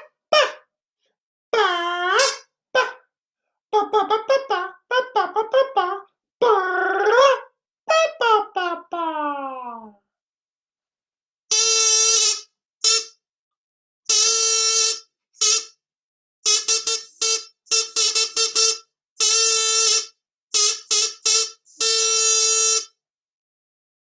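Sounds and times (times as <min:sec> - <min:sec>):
horn-like instrument repeating note: 0:02.2 - 0:02.4, 0:11.5 - 0:13.2, 0:14.1 - 0:15.8, 0:16.4 - 0:23.0.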